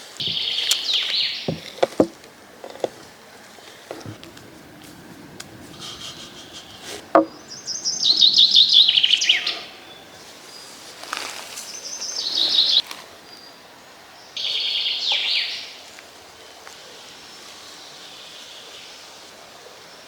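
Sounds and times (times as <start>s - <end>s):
songbird trilling: 0.2s - 2.1s, 3.9s - 10.2s
short knock: 1.5s - 2.2s, 7.1s - 7.4s.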